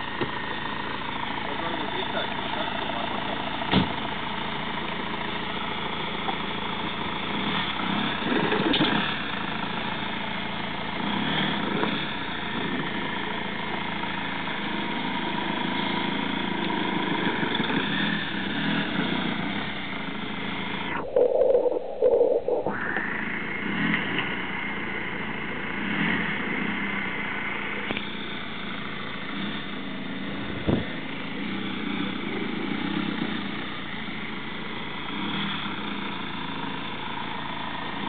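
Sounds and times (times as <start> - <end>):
car engine idling: 0.0 - 8.0, 23.2 - 38.0.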